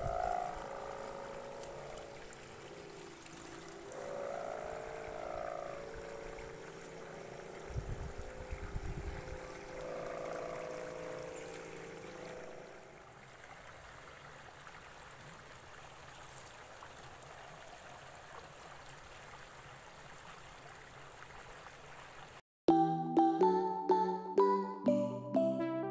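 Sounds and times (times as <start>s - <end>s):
wind rumble on microphone: 0.0s - 0.7s, 7.6s - 10.8s
kite bow humming: 0.0s - 13.1s.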